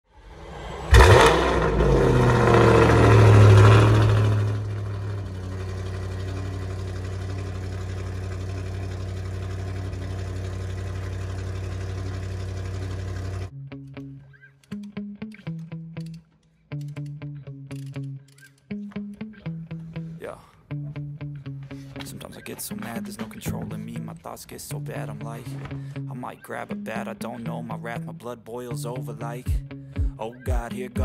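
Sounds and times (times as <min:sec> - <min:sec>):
car engine revving and idling: 0:00.1 - 0:13.5.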